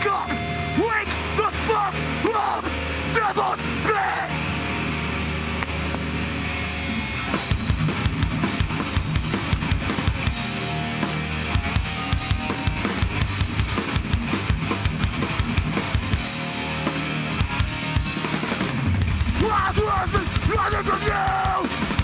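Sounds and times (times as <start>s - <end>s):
heavy band playing instrumental: 0.0s - 22.0s
rapid bass drum beats: 7.3s - 22.0s.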